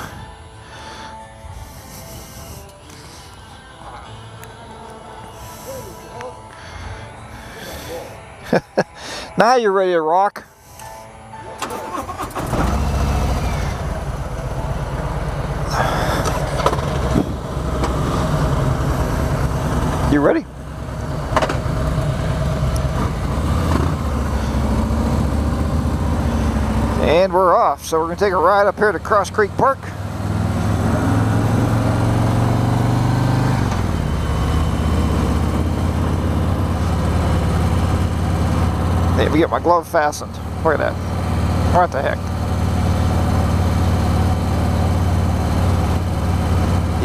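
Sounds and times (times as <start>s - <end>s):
motorcycle engine idling: 13.2s - 30.3s, 33.7s - 47.0s.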